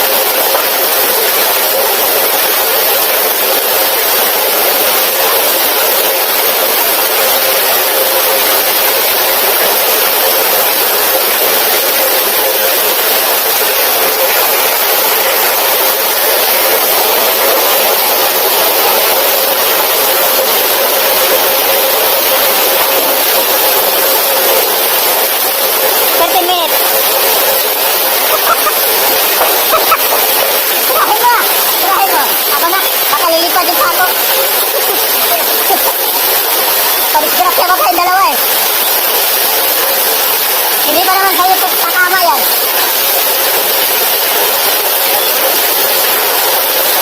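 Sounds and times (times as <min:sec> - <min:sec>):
heavy rain falling: 0:00.0 - 0:47.0.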